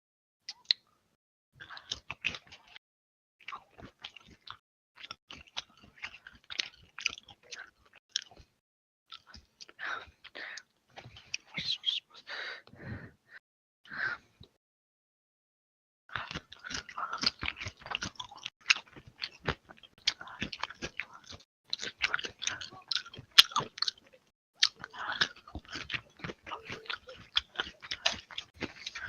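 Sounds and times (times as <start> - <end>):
person chewing noisily: 1.6 - 2.8, 3.4 - 11.8, 16.1 - 29.0.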